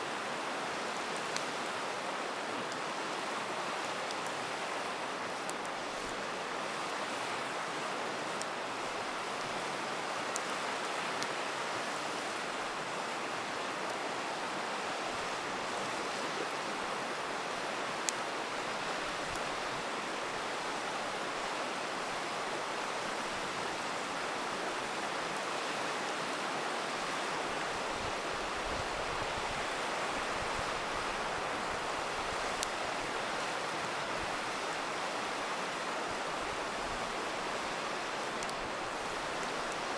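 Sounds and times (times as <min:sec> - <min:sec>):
river rushing: 0:00.0 - 0:39.9
campfire popping: 0:36.4 - 0:39.9.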